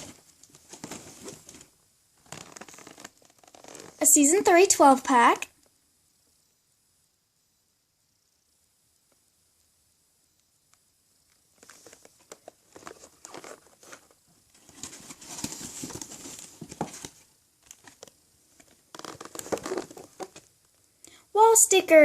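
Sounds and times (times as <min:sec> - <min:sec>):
plastic packaging crinkling: 0:02.2 - 0:04.0, 0:11.6 - 0:20.5.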